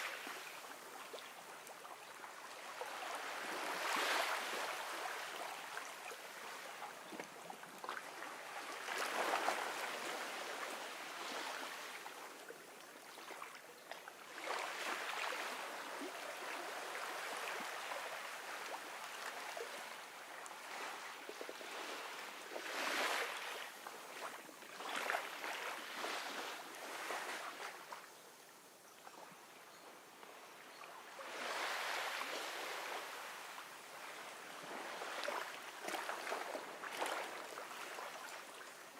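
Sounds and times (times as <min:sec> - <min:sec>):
ocean waves washing onto beach: 0:02.4 - 0:12.5.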